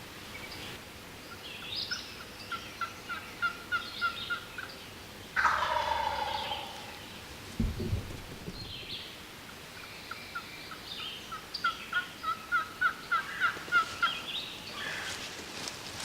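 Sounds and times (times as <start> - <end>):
turkey gobbling: 5.4 - 7.0, 11.6 - 14.2.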